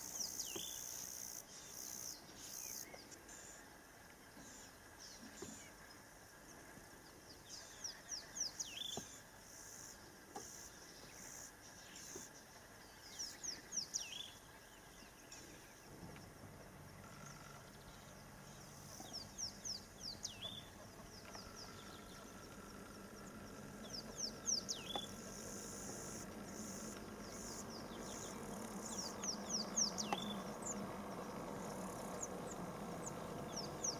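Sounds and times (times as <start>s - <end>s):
insects buzzing: 0.0s - 33.9s
low steady hum: 0.0s - 33.9s.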